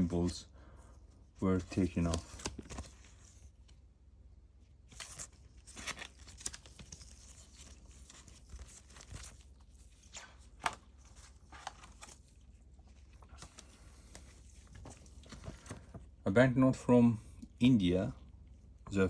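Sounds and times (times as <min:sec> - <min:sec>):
paper banknotes rustling: 0:01.5 - 0:03.8, 0:04.9 - 0:16.1.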